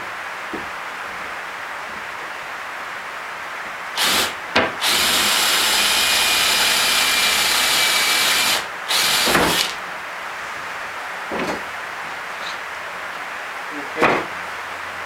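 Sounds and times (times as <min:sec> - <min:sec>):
power tool cutting hardwood: 0:04.0 - 0:09.8.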